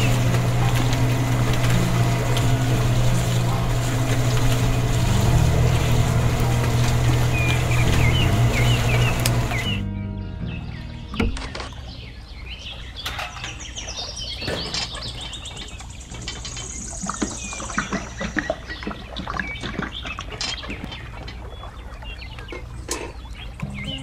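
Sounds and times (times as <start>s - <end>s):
steady low hum: 0.0s - 11.1s
small birds chirping: 0.0s - 24.0s.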